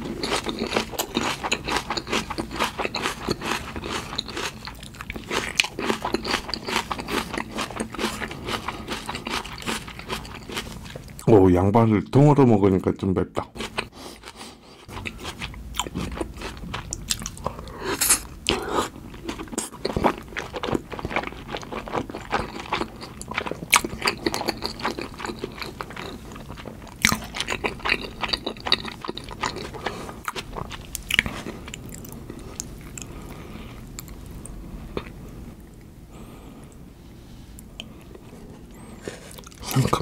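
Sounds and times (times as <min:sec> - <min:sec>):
wet chewing and mouth smacks: 0:13.6 - 0:35.2.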